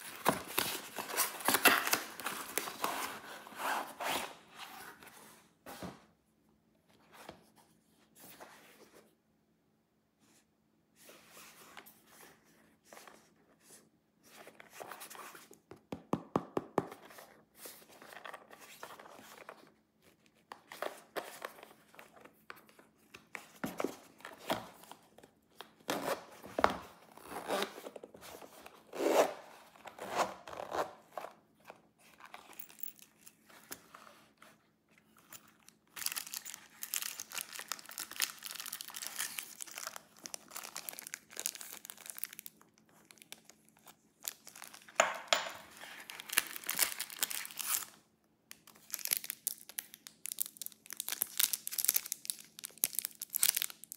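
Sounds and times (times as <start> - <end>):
packaging rustling and crinkling: 0.0 - 5.2, 32.0 - 47.9, 48.6 - 53.9.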